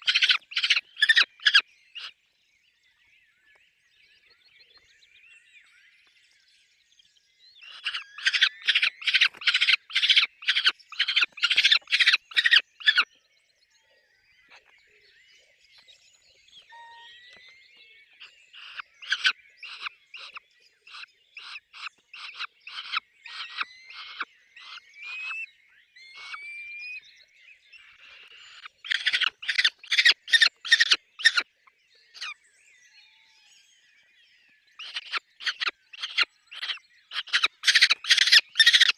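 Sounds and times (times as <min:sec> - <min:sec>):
falcons calling rapidly: 0:00.0 - 0:02.1, 0:07.6 - 0:13.0, 0:18.6 - 0:25.4, 0:26.2 - 0:26.4, 0:28.0 - 0:31.4, 0:34.8 - 0:38.9.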